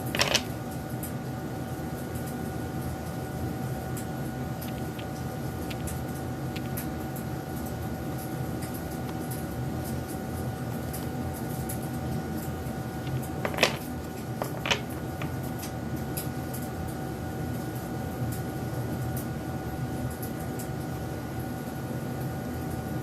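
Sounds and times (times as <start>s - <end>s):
background hum: 0.0s - 23.0s
faint constant whine: 0.0s - 23.0s.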